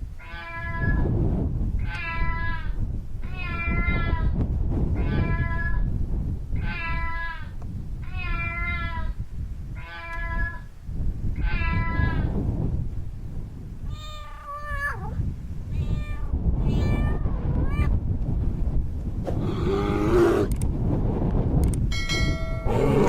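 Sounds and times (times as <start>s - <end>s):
cat meowing: 3.2s - 4.3s, 5.0s - 5.8s, 6.6s - 7.4s, 8.0s - 9.1s, 11.4s - 12.3s, 13.9s - 17.9s.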